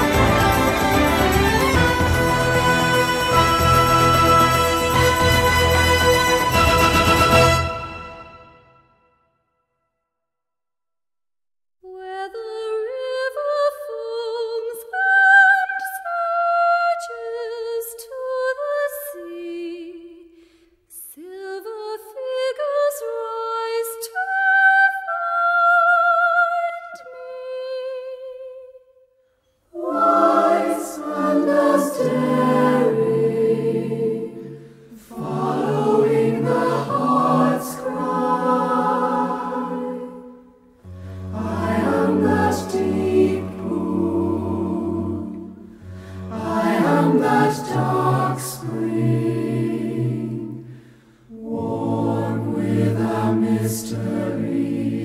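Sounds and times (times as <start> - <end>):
choir singing sustained chords: 0.0 - 8.9, 29.7 - 55.0.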